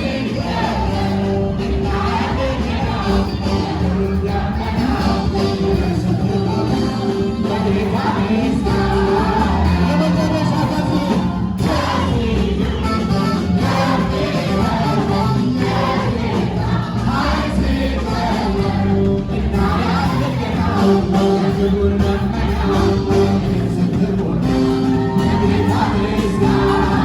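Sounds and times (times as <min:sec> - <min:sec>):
gospel singing: 0:00.0 - 0:27.0.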